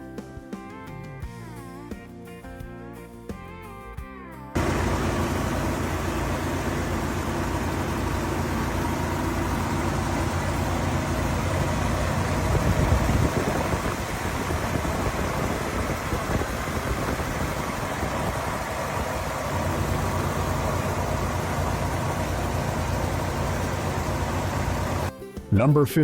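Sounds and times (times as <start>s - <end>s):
car engine idling: 4.6s - 25.1s.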